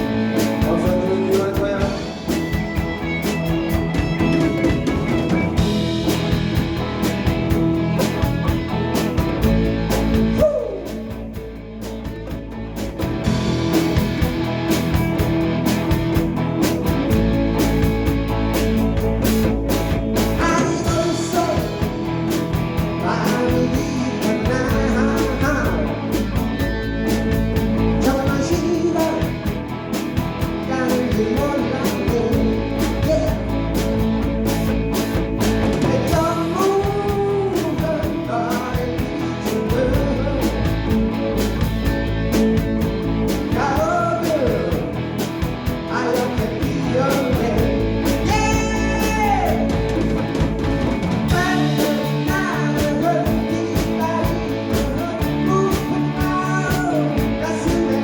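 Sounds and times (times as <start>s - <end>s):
person singing lead vocal: 0.0s - 5.5s, 10.3s - 11.4s, 20.2s - 34.2s, 35.7s - 41.6s, 42.4s - 50.3s, 51.2s - 58.0s
live rock band playing: 0.0s - 58.0s.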